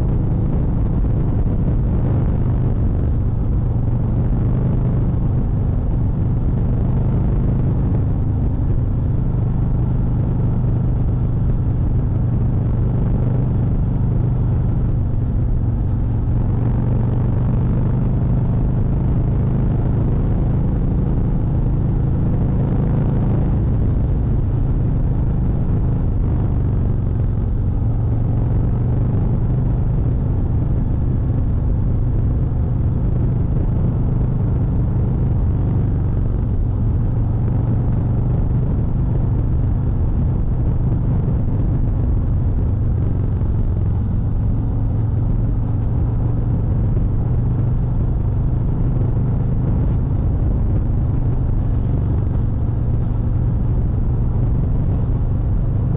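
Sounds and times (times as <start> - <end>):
motorcycle engine rumbling: 0.0 - 55.9.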